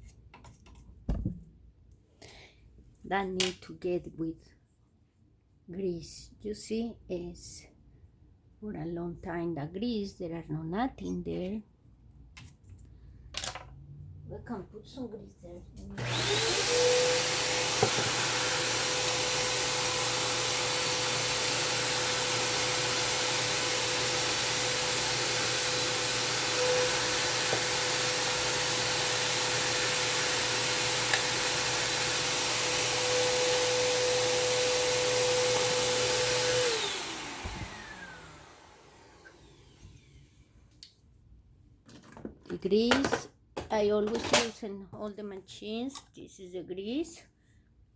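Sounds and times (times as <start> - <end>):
electric fan running: 16.0 - 40.1.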